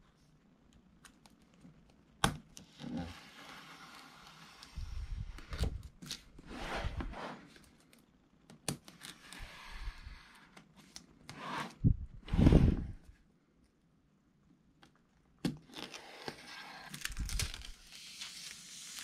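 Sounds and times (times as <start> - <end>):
paper or plastic rustling: 17.0 - 17.9.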